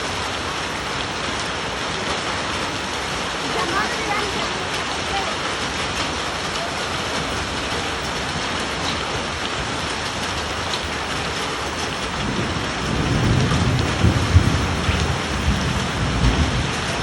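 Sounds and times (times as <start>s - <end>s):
hailstones ticking: 0.0s - 17.0s
heavy rain hissing: 0.0s - 17.0s
thunder rumbling: 0.0s - 17.0s.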